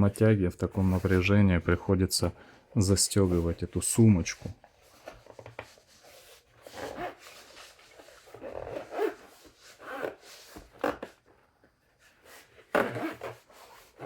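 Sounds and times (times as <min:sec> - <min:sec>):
zip and fabric rasping: 0:06.6 - 0:11.2, 0:12.2 - 0:14.0.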